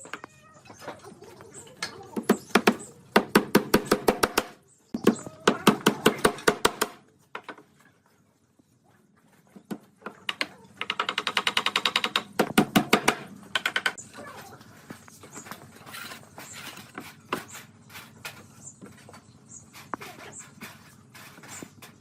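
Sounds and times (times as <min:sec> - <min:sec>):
hammering on wood: 0:02.2 - 0:07.0, 0:10.3 - 0:14.0.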